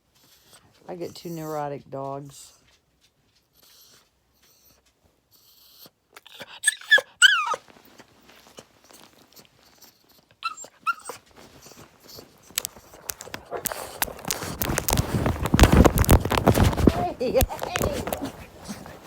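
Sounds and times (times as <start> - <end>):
dog whining: 5.4 - 19.0
small clicks and scratches: 7.5 - 19.0.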